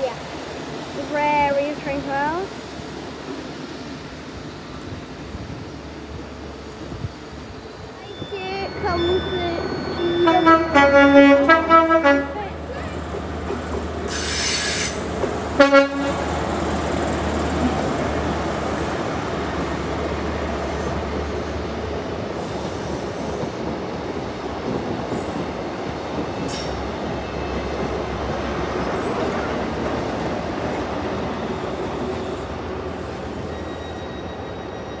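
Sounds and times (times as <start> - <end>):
train rumbling past: 0.0 - 35.0
train horn: 10.0 - 12.6, 15.6 - 16.4.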